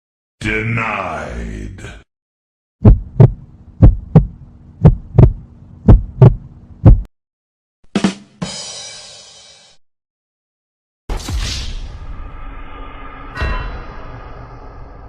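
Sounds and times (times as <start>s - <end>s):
heartbeat thumps: 2.8s - 7.1s
steady low hum: 2.8s - 7.1s
ringing crash: 11.2s - 15.0s.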